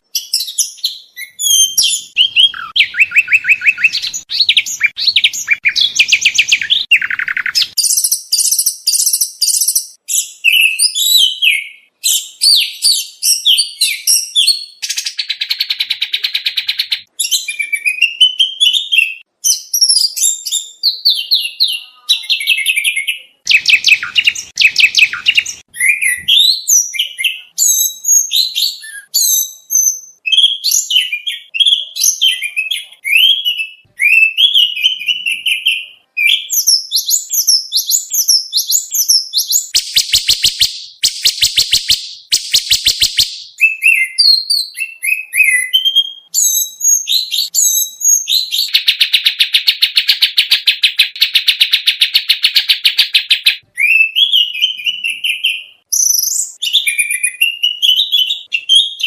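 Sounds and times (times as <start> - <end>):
songbird singing trills: 0.0 - 59.0
buzzy rattling bird phrase: 1.5 - 10.0, 22.2 - 26.2, 39.3 - 43.7.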